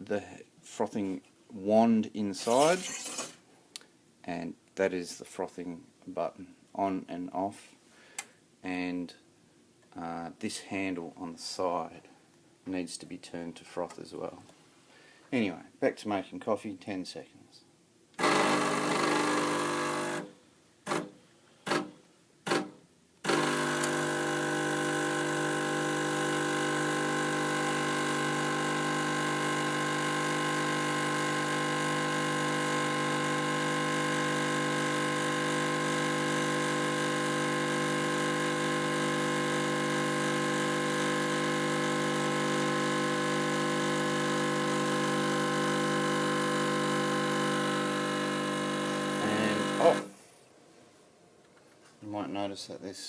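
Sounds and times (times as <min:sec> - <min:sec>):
espresso machine pump buzzing: 0:18.2 - 0:20.3, 0:23.2 - 0:50.1.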